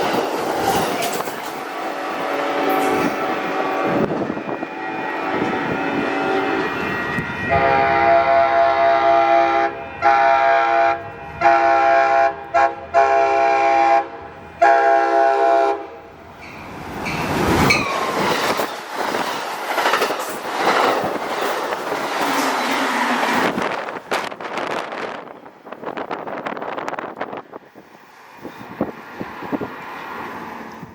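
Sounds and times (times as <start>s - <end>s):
train rushing past: 0.0s - 30.9s
train horn blasts: 1.8s - 16.1s.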